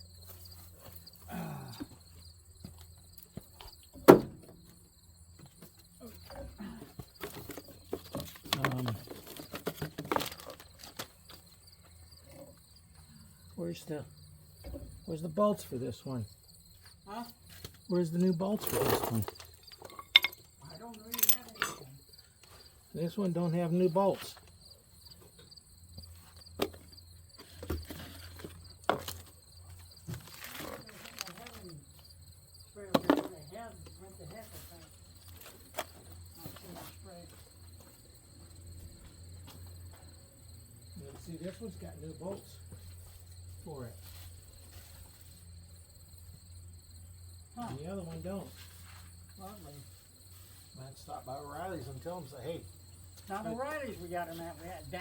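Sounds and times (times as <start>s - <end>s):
crickets chirping: 0.0s - 55.0s
low grunt: 1.3s - 2.0s
tools clicking and knocking: 18.7s - 21.9s.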